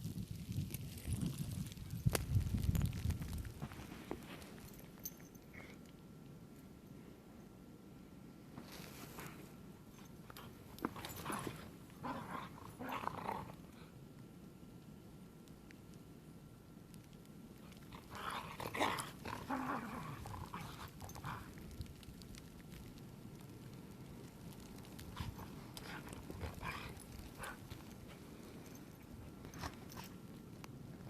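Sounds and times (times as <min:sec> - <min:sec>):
dogs growling: 0:10.4 - 0:13.8, 0:17.7 - 0:21.6, 0:24.6 - 0:30.2.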